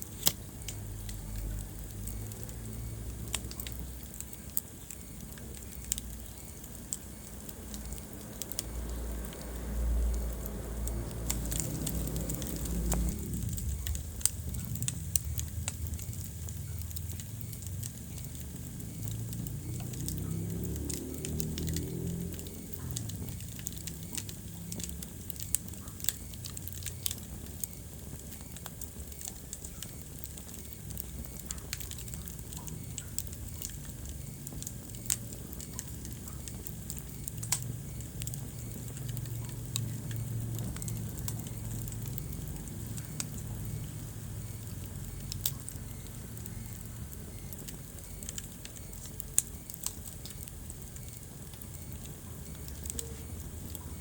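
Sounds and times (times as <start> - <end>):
logs crackling and popping: 0.0 - 54.0
wood fire burning: 0.0 - 54.0.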